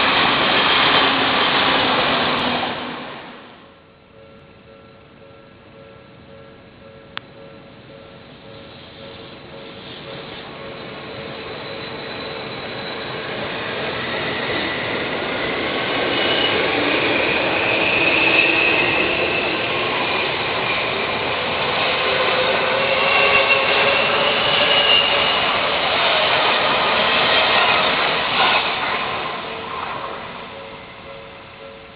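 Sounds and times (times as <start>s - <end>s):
train running past: 0.0s - 31.9s
high thin squeal: 8.6s - 31.4s.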